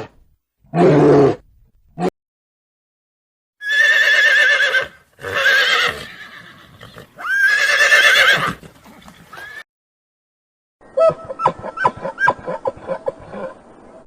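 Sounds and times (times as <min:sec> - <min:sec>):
animal high quavering cry: 0:03.6 - 0:09.6.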